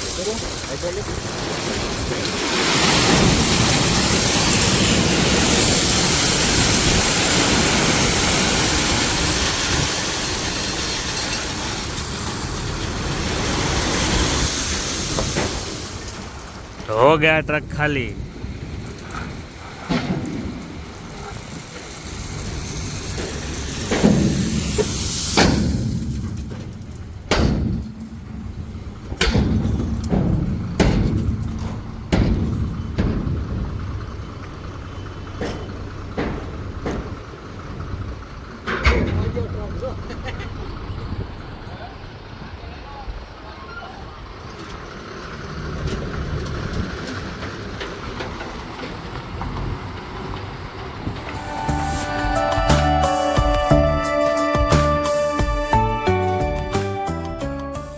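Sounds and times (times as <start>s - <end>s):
hiss: 0.0s - 16.3s, 20.9s - 27.0s
heavy bangs: 0.0s - 41.6s
truck engine running: 0.0s - 57.6s.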